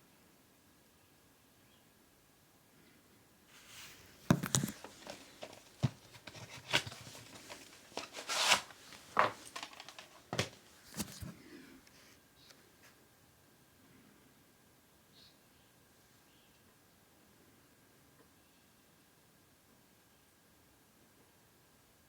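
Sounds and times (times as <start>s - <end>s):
packaging clicking and snapping: 4.3s - 11.3s
wrapping crinkling and tearing: 4.5s - 11.3s.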